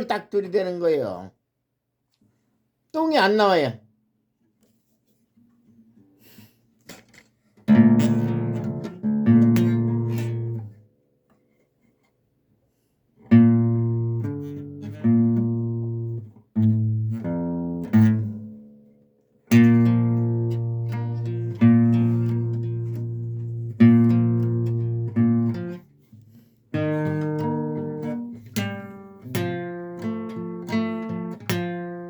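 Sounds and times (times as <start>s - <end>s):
acoustic guitar chords strummed: 7.7s - 10.8s, 13.3s - 18.9s, 19.5s - 25.9s, 26.7s - 32.0s.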